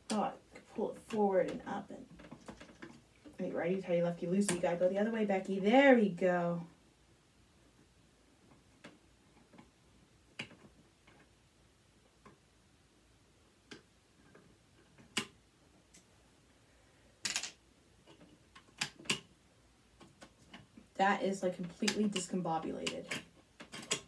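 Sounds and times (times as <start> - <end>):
parts being handled: 17.2 - 19.3.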